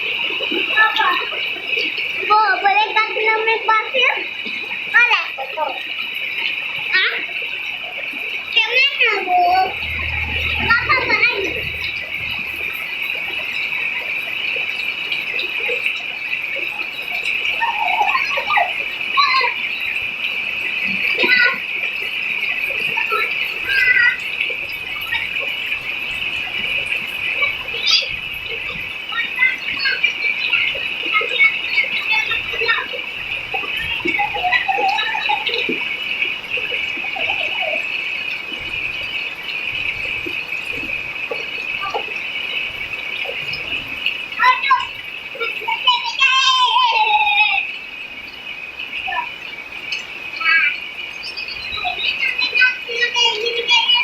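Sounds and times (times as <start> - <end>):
rain falling: 0.0 - 54.0
steady high-pitched drone: 9.1 - 13.6
child calling: 45.7 - 47.7.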